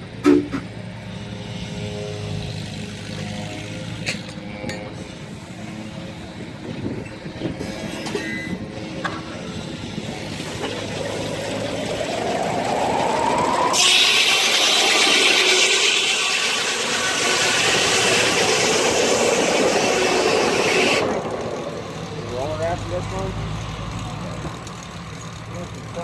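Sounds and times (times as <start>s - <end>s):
rising whine: 5.0s - 25.8s
steam sawmill running: 5.2s - 26.0s
loud hissing rush: 9.4s - 23.4s.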